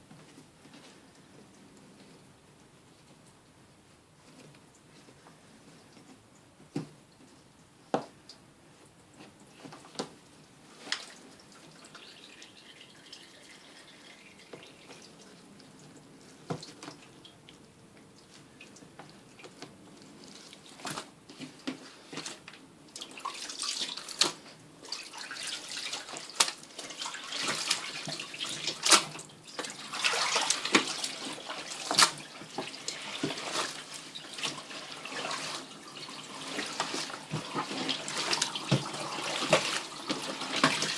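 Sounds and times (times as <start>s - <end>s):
water splashing into washing machine: 10.9s - 15.2s, 23.0s - 40.9s.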